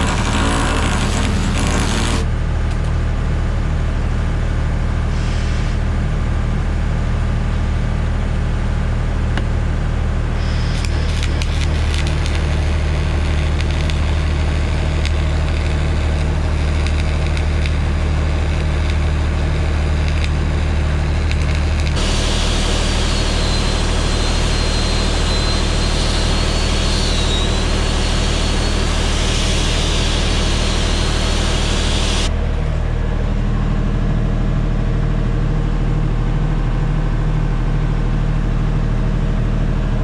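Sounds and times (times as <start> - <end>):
sharp crackling: 0.0 - 2.2, 10.4 - 32.3
heavy engine running: 0.0 - 40.0.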